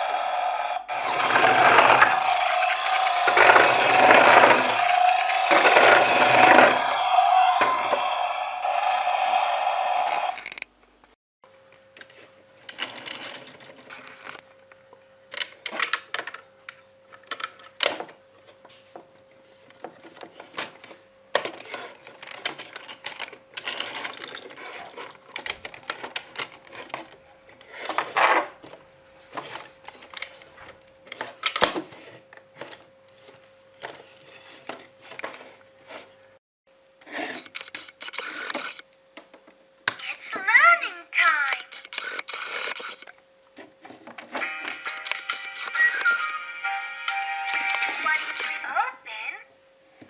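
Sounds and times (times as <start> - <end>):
plastic toys and packaging handled: 1.2 - 7.0, 12.0 - 14.4, 19.7 - 36.1.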